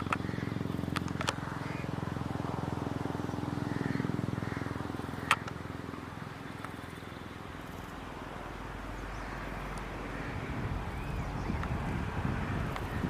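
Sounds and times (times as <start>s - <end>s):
engine running with fast pulse: 0.0s - 13.0s
deep low rumble: 7.6s - 13.0s.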